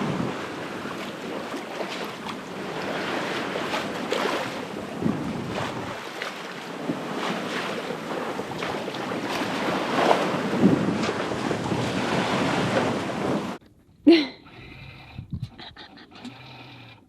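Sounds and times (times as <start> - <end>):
wind buffeting microphone: 0.0 - 1.6, 2.2 - 13.6, 14.6 - 15.9
water splashing along boat hull: 0.0 - 13.6.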